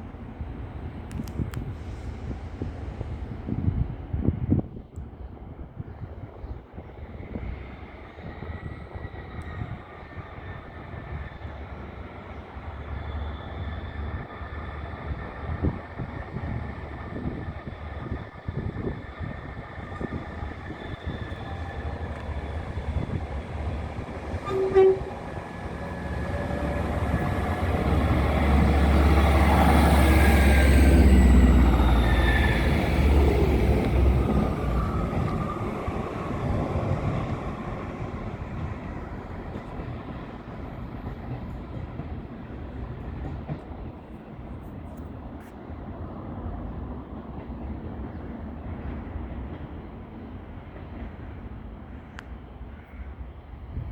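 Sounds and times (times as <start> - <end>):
train engine rumble passing: 0.0 - 53.9
train wheel noise: 7.2 - 51.8
train horn toot: 24.3 - 25.6.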